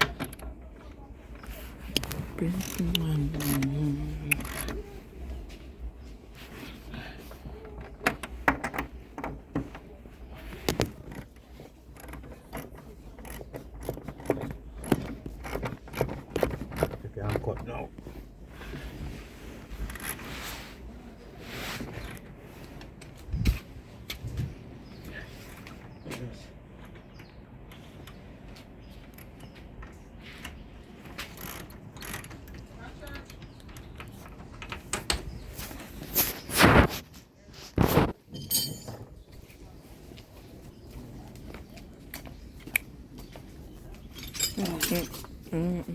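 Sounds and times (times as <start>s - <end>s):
hand tools clicking on metal: 30.4s - 35.1s
metal tools clicking: 38.3s - 39.0s, 44.1s - 45.3s.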